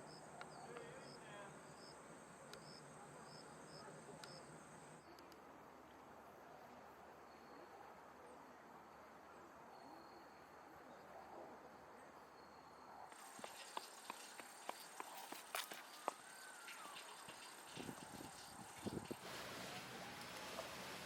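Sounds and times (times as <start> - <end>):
insects trilling: 13.1 - 21.0.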